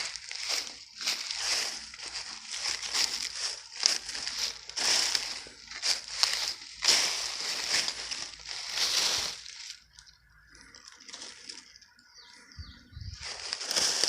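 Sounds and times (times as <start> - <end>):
faint forest ambience: 0.0 - 14.0
footsteps crunching dry leaves: 0.0 - 14.0.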